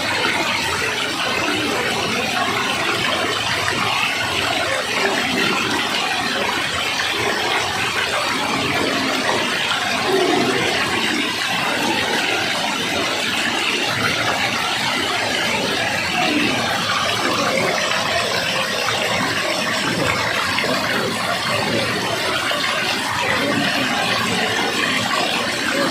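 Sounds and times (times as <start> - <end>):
rushing water: 0.0 - 25.9.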